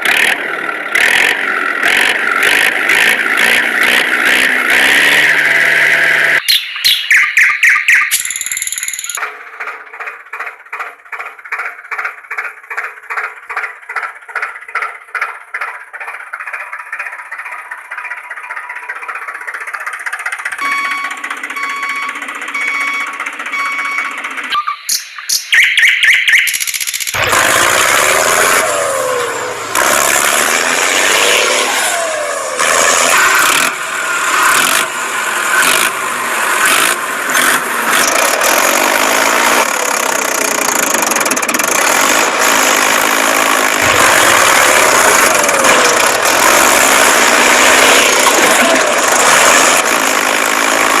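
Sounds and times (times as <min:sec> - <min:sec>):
small vehicle motor running: 0:00.0 - 0:06.4, 0:08.6 - 0:24.5, 0:26.5 - 0:51.0
quick clicks: 0:08.0 - 0:09.3, 0:26.2 - 0:27.2.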